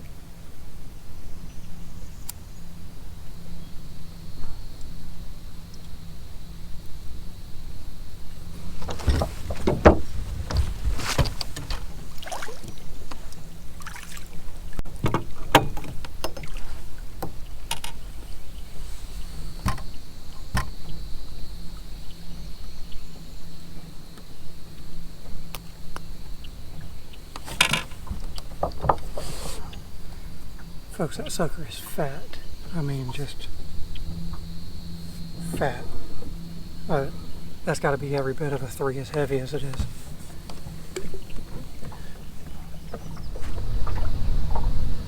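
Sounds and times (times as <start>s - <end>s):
steady low hum: 0.0s - 45.0s
faint high whine: 18.1s - 45.0s.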